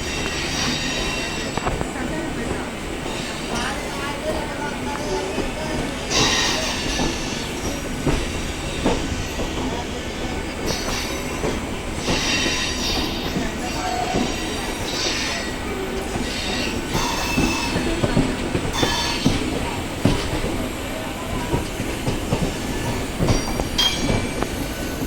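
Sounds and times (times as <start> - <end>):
train rumble: 0.0 - 25.0
high wheel squeals: 6.1 - 19.6.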